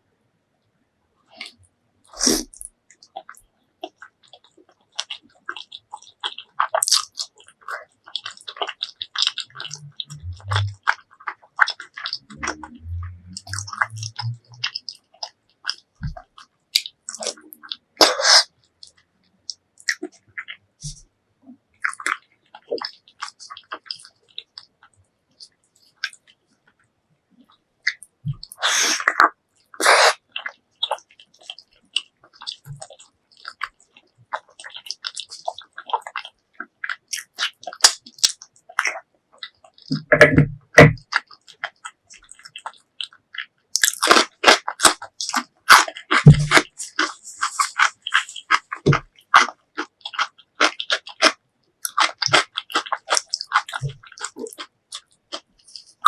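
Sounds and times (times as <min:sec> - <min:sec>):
slurps: 0:01.3 - 0:03.4, 0:05.4 - 0:21.0, 0:27.9 - 0:31.6
chewing and biting: 0:01.3 - 0:21.1, 0:21.8 - 0:26.8, 0:27.4 - 0:56.0
wet mouth clicks and smacks: 0:01.4 - 0:21.0, 0:34.3 - 0:56.0.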